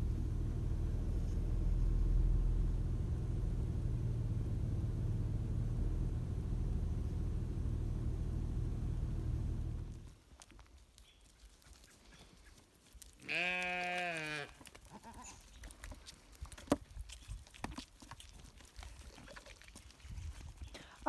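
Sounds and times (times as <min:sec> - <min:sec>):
low rumble: 0:00.0 - 0:10.1
goat bleating: 0:13.2 - 0:15.4.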